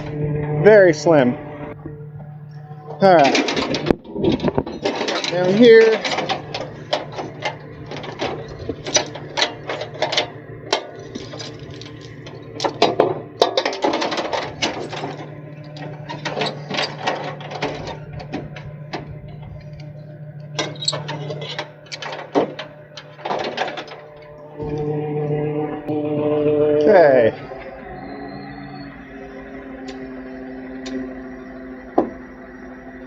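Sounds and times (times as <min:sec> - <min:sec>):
truck engine running: 0:00.0 - 0:33.0
metallic clicks and rattles: 0:03.0 - 0:24.3.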